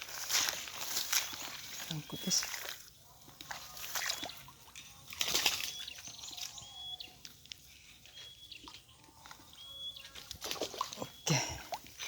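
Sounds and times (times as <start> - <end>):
fish flapping: 5.2 - 5.8.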